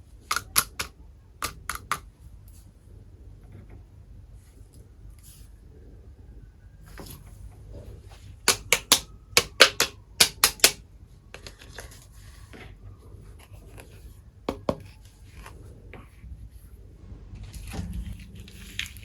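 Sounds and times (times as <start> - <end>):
toy kitchen pieces clicking: 0.2 - 2.1, 8.5 - 10.8.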